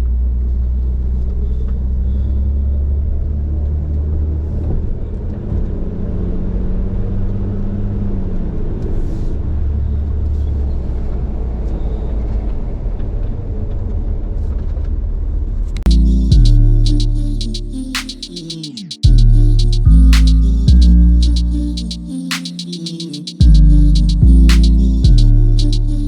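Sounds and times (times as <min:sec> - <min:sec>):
vehicle engine rumbling: 0:15.9 - 0:22.3, 0:22.9 - 0:26.0.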